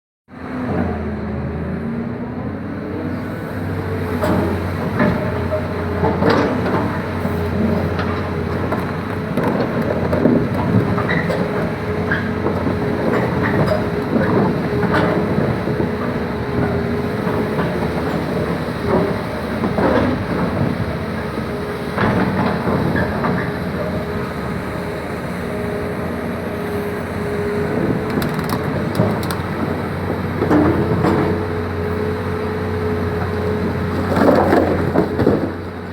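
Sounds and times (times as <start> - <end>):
excavator diesel engine whining: 0.4 - 35.9
bucket clanking and scraping stone: 33.9 - 35.6.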